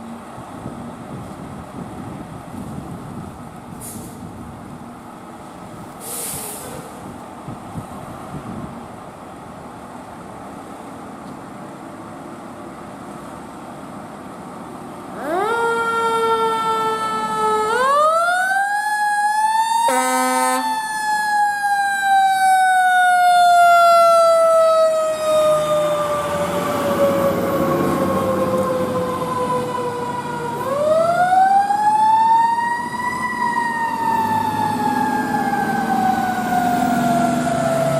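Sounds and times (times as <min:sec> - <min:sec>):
fire engine siren: 0:15.1 - 0:37.9
air horn blast: 0:19.8 - 0:20.8.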